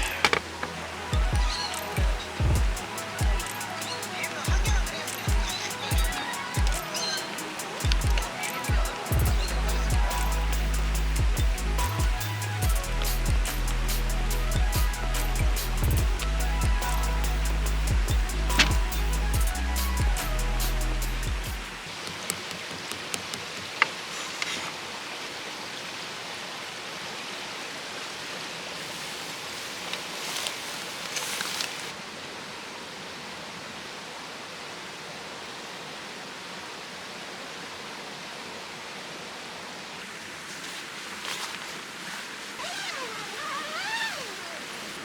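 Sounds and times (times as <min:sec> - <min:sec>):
stream rushing: 0:00.0 - 0:45.0.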